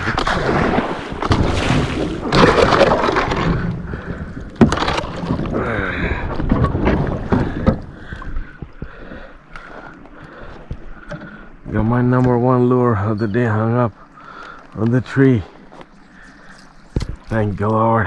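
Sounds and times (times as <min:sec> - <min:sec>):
water splashing around kayak: 0:00.0 - 0:12.9.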